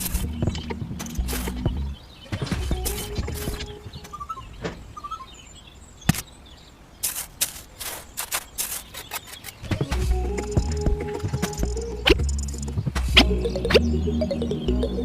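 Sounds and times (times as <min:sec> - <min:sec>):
faint bird chirps: 0:00.0 - 0:07.2.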